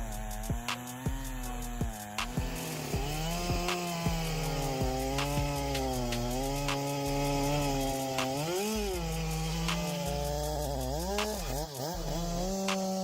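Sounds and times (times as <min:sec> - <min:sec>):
chainsaw cutting wood: 0:00.0 - 0:13.0
sharp clicks: 0:02.0 - 0:02.9, 0:08.0 - 0:08.8, 0:09.4 - 0:11.6.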